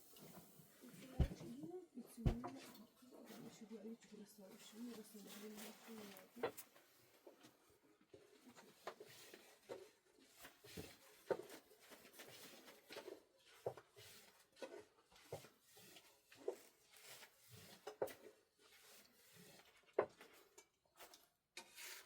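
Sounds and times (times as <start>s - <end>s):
soft knocks and rubbing: 1.0s - 1.6s.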